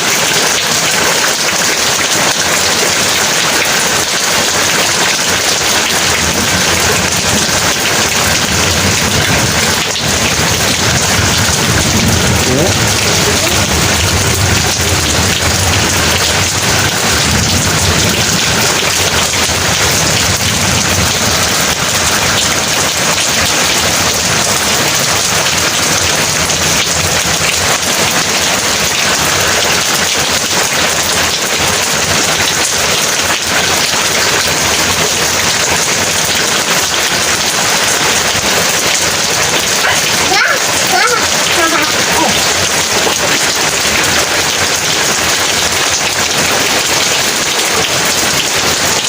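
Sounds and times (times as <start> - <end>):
heavy rain pouring: 0.0 - 49.0
low thunder rumble: 6.2 - 22.6.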